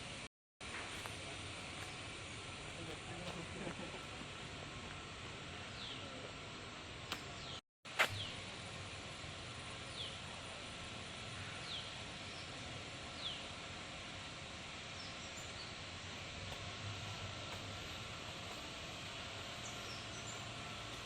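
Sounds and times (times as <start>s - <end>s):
outdoor hiss: 0.0s - 21.0s.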